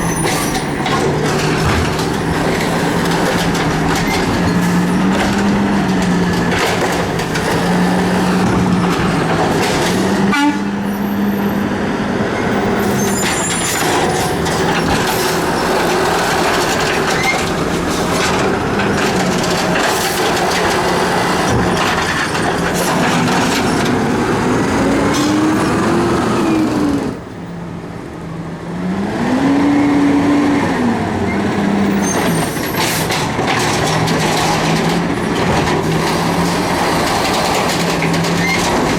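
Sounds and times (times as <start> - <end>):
garbage truck engine running: 0.0 - 28.7, 30.0 - 38.9
metal clanks: 32.1 - 38.9.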